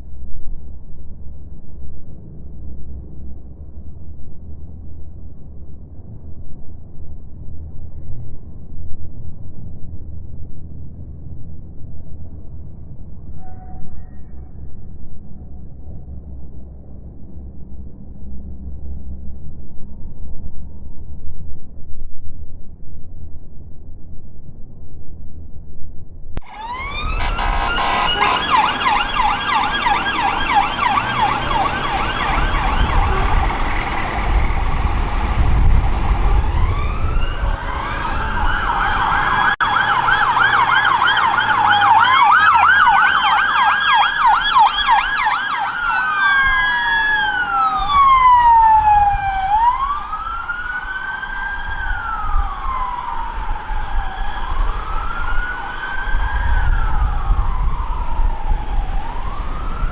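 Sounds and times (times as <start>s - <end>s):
low vehicle rumble: 0.0s - 59.9s
emergency vehicle sirens: 26.4s - 59.9s.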